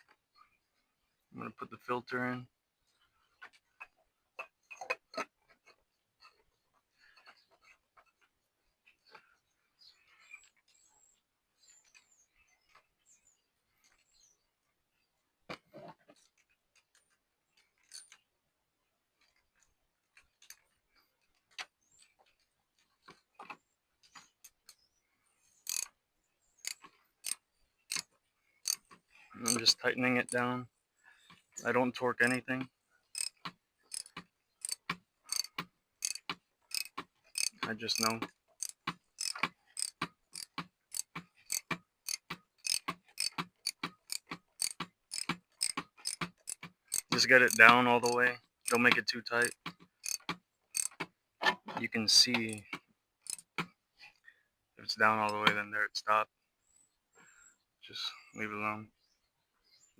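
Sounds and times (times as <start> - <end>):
socket ratchet clicking: 25.7 - 25.9, 26.6 - 28.8, 29.4 - 29.8, 33.2 - 51.0, 52.4 - 53.6.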